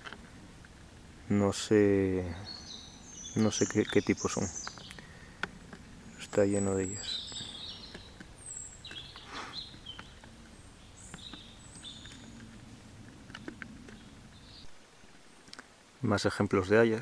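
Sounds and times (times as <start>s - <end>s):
faint rustle: 0.0s - 17.0s
small birds chirping: 0.0s - 17.0s.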